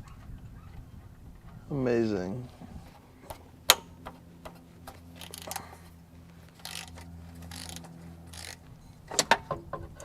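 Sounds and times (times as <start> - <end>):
ratchet wrench clicking: 5.2 - 5.6, 6.6 - 8.6.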